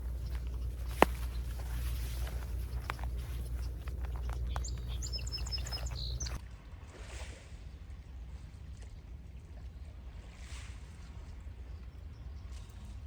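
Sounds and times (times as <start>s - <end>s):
small bird chirping: 0.0s - 6.4s
soft hiss: 0.0s - 6.4s.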